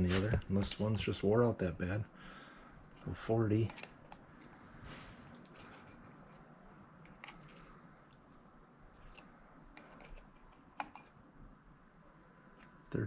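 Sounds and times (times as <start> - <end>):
caliper clicks and scraping: 5.2 - 8.4, 9.0 - 11.2.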